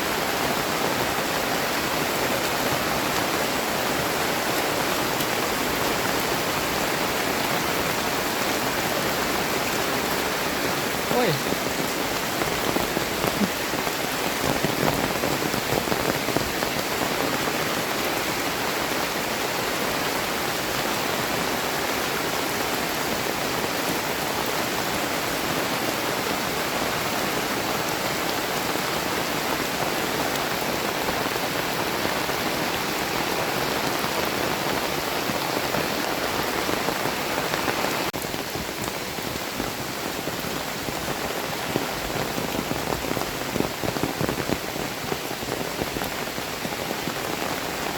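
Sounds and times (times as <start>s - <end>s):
heavy rain falling: 0.0s - 47.9s.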